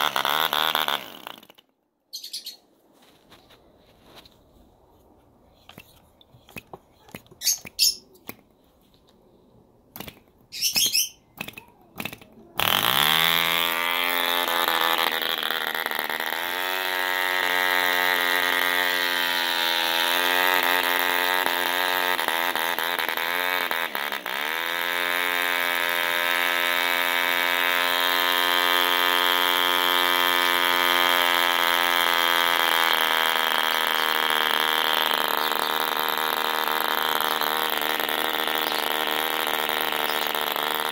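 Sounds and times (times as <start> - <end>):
model engine running at high revs: 0.0 - 1.6, 11.4 - 40.9
model engine flicking clicks: 11.4 - 13.0.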